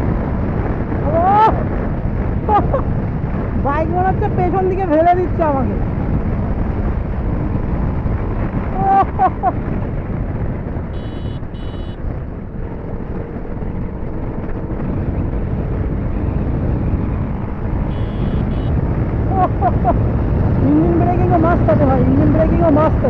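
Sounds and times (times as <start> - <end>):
wind rushing on microphone: 0.0 - 23.0
motorcycle engine: 10.8 - 20.7
short high beeps: 11.0 - 12.0, 17.9 - 18.7.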